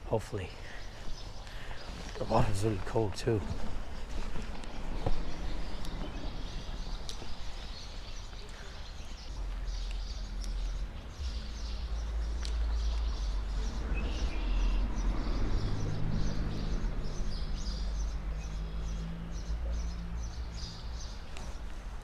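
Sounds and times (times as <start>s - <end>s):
small birds chirping: 0.0s - 22.0s
low hum: 3.4s - 19.4s
low rumble: 9.2s - 19.0s.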